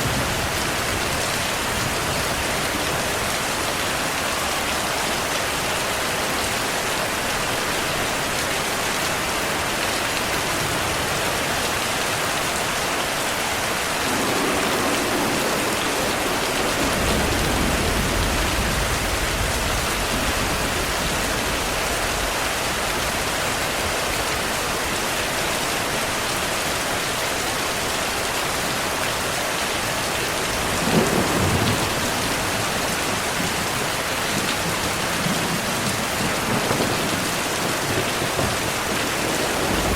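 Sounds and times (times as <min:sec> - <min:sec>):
heavy rain: 0:00.0 - 0:39.9
rolling thunder: 0:13.6 - 0:23.0, 0:30.4 - 0:39.9
sharp thunderclap: 0:13.9 - 0:22.4, 0:30.6 - 0:32.8, 0:34.6 - 0:39.9.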